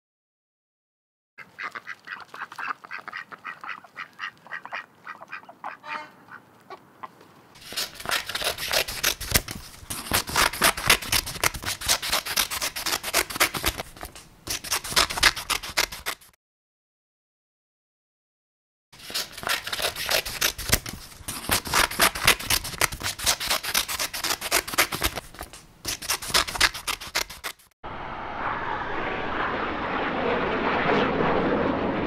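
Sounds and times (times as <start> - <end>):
duck quacking: 1.4 - 7.2
scissors snipping paper: 7.6 - 16.4, 19.0 - 27.7.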